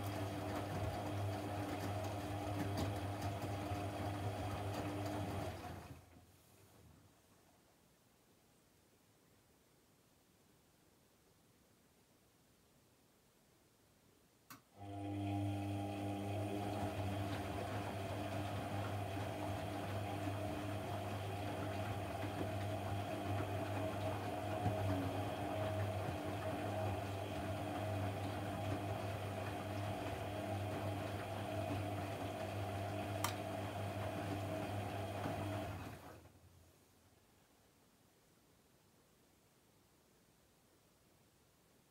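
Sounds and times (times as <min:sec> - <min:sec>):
appliance electric motor humming: 0:00.0 - 0:05.9, 0:14.8 - 0:36.1.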